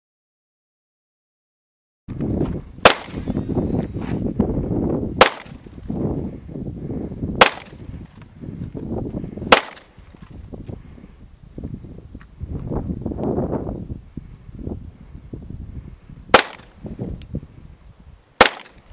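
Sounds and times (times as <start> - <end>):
rifle shots: 2.8 - 3.4, 5.2 - 5.6, 7.4 - 7.8, 9.5 - 9.9, 16.3 - 16.7, 18.4 - 18.8.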